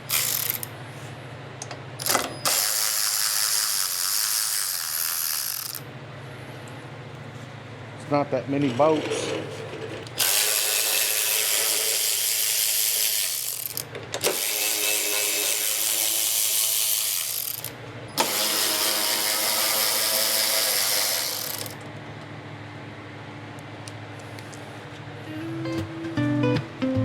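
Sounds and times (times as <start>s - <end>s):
power ratchet spinning out bolts: 0.0s - 0.7s, 2.0s - 5.9s, 10.1s - 21.8s.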